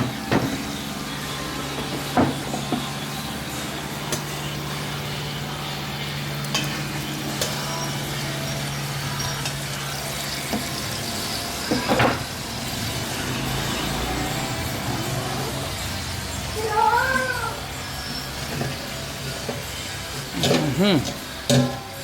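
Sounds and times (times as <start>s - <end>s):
chicken sizzling on a griddle: 5.6s - 20.3s.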